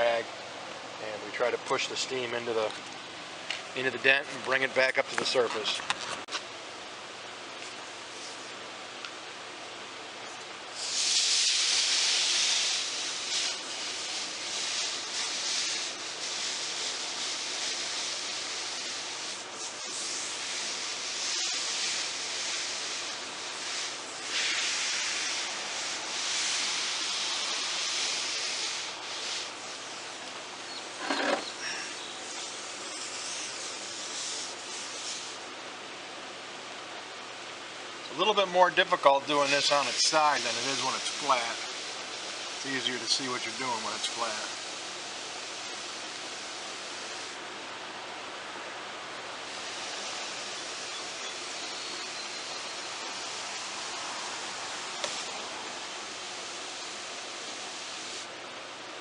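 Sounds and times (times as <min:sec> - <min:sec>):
steam iron hissing: 0:10.8 - 0:30.2, 0:30.9 - 0:35.5, 0:39.4 - 0:47.4, 0:49.4 - 0:58.3
short squeak: 0:31.0 - 0:31.6.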